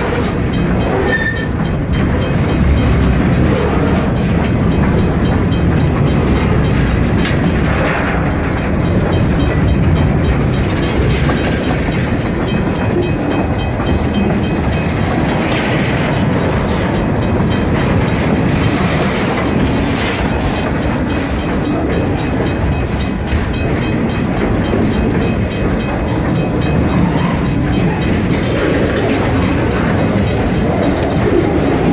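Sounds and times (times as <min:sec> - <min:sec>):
faint clickety-clack: 0:00.0 - 0:31.9
freight train wheels rumbling: 0:00.0 - 0:31.9.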